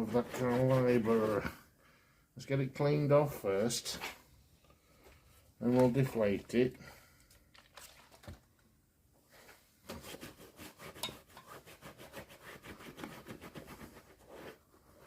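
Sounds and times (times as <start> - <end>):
rubbing on rubber inner tube: 0.0 - 1.5, 9.9 - 15.0.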